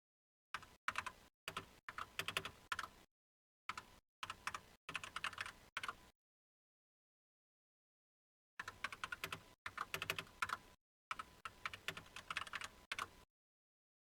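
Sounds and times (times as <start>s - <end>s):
keyboard typing: 0.6s - 3.0s, 3.7s - 6.0s, 8.6s - 13.2s.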